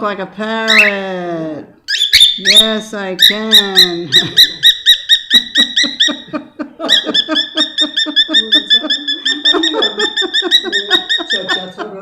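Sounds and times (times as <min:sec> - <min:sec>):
parrot chattering squawks: 0:00.7 - 0:01.0, 0:01.9 - 0:06.3, 0:06.9 - 0:11.7.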